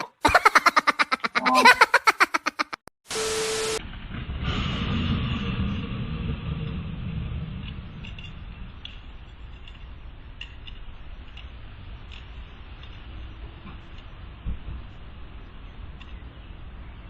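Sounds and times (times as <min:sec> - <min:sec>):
vehicle engine and road rumble: 0:03.8 - 0:17.0.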